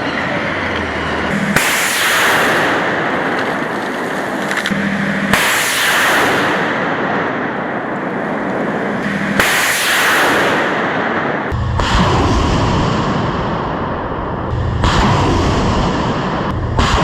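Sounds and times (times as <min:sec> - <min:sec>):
rocket launch crack and hiss: 0:01.3 - 0:13.6
heavy low boom: 0:10.7 - 0:17.0.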